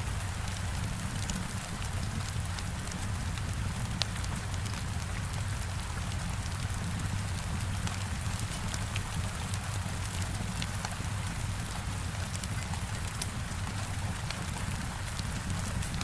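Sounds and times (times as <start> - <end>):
heavy rain on a window: 0.0 - 16.0
wood fire crackling: 0.1 - 16.0.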